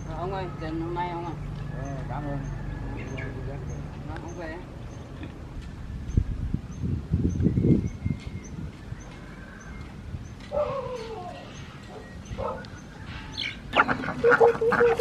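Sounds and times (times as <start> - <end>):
poultry calling: 10.6 - 15.0.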